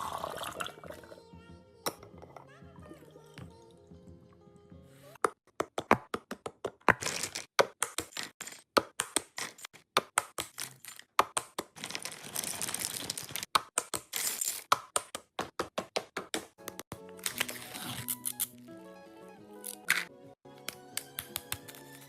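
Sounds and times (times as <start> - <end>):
packaging rustling: 11.8 - 13.5.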